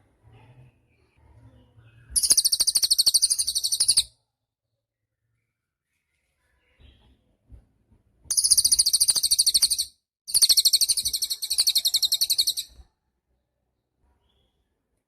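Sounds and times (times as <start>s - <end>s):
songbird high rapid trills: 8.3s - 12.6s.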